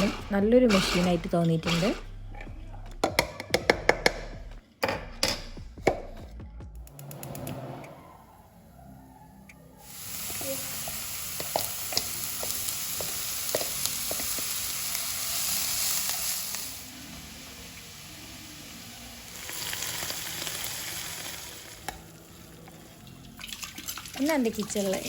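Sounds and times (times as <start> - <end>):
food sizzling in hot oil: 0.0 - 2.0, 9.8 - 25.0.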